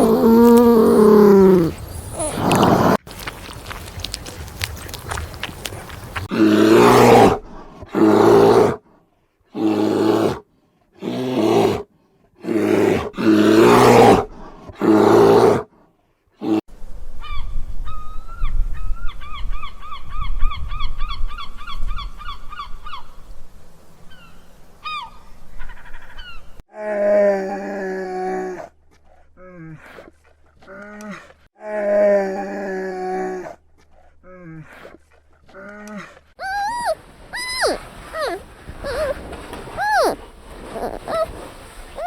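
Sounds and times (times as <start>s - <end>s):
small bird trilling: 36.4s - 39.2s.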